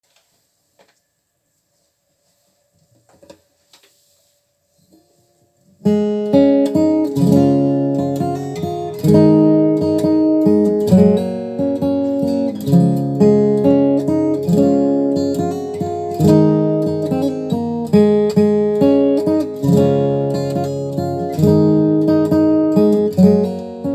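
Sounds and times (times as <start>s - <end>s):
acoustic guitar strumming chords: 5.8s - 23.9s.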